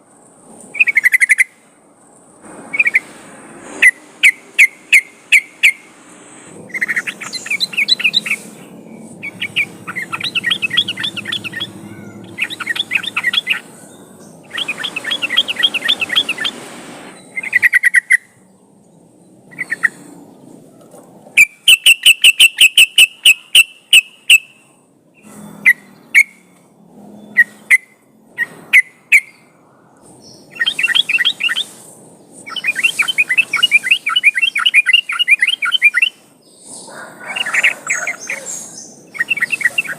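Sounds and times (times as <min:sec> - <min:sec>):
sharp bird call notes: 0:06.7 - 0:13.8.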